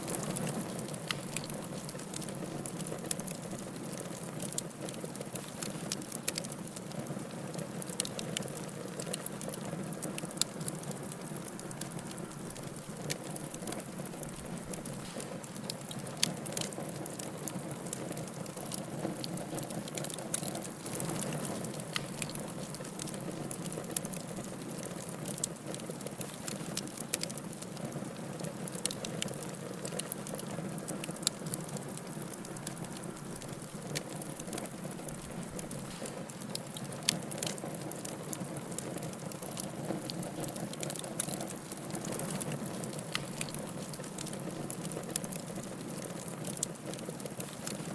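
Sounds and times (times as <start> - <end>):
flames rushing: 0.0 - 17.2, 18.0 - 24.3
fire crackling and popping: 0.0 - 47.9.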